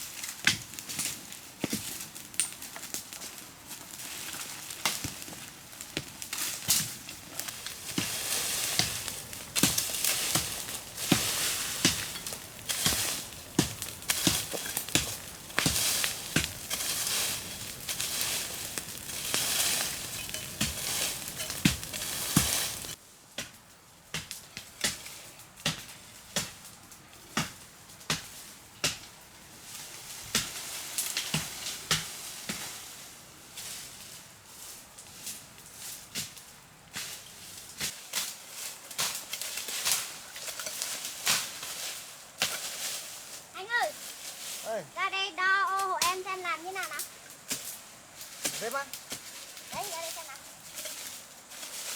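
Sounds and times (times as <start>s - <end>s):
dense rustling hiss: 0.0s - 24.0s, 25.0s - 51.9s
sharp irregular knocks and cracks: 0.3s - 3.3s, 4.3s - 26.6s, 27.2s - 29.2s, 30.3s - 32.1s.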